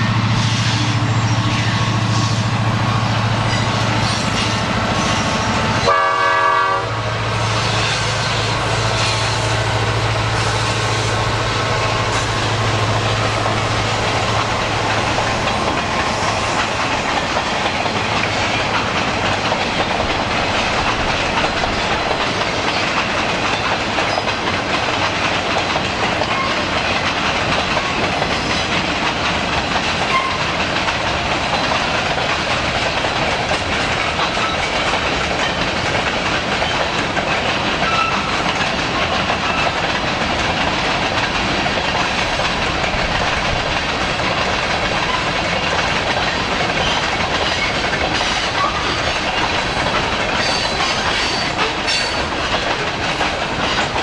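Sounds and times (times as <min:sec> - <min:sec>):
diesel locomotive engine hum: 0:00.0 - 0:54.0
freight cars clattering over bridge: 0:00.0 - 0:54.0
train horn blast: 0:04.1 - 0:08.1.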